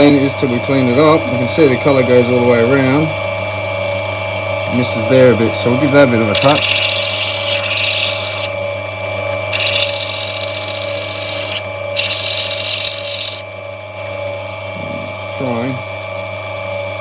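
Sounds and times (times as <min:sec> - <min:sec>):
grinding wheel motor hum: 0:04.6 - 0:15.9
stone grinding hiss: 0:06.4 - 0:08.5, 0:09.5 - 0:13.5.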